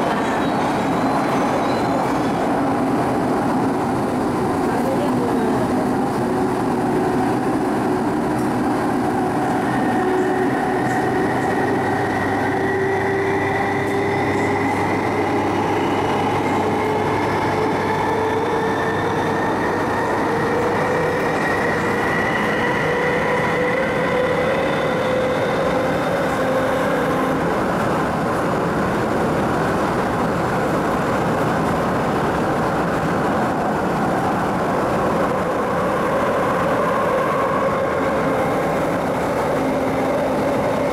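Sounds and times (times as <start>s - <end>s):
train running and rail noise: 0.0s - 40.9s.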